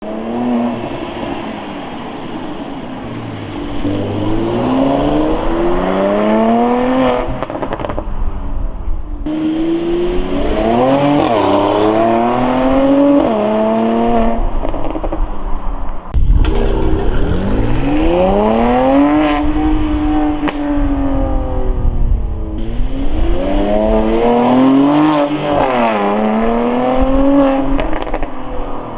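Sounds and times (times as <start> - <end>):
car accelerating past: 0.1 - 8.1, 16.2 - 20.8.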